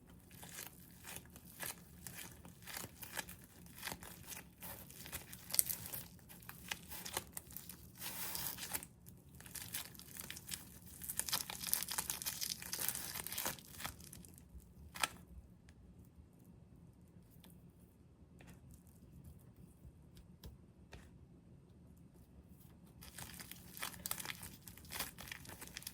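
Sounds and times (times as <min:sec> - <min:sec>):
packaging crinkling and tearing: 0:00.3 - 0:15.2, 0:23.0 - 0:25.9.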